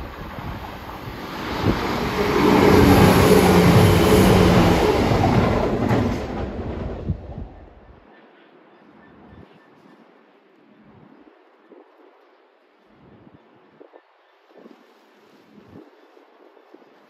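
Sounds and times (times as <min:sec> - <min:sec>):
diesel train passing: 0:00.0 - 0:07.9
sharp clicks from rails: 0:01.4 - 0:07.5.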